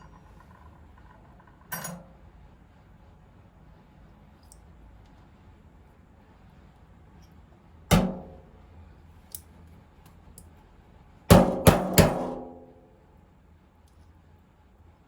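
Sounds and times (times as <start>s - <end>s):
sharp metallic knocks: 7.9s - 8.4s, 11.3s - 12.8s.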